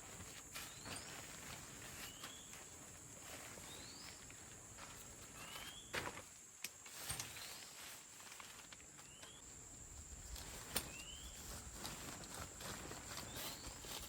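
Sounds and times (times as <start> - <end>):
insect drone: 0.0 - 14.0.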